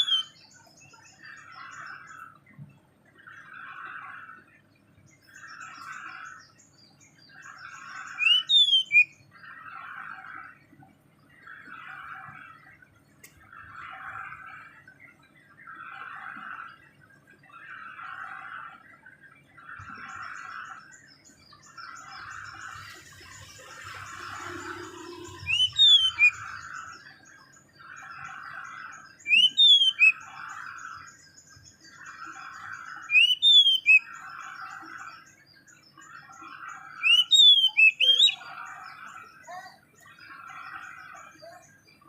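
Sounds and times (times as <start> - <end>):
rasping bird call: 0.0 - 0.3, 8.0 - 9.1, 22.4 - 26.9, 29.3 - 30.2, 33.0 - 34.0, 37.0 - 38.4
bird whistling song: 0.0 - 1.2, 8.0 - 9.2, 21.6 - 27.2, 29.1 - 30.3, 32.5 - 34.2, 36.9 - 38.6.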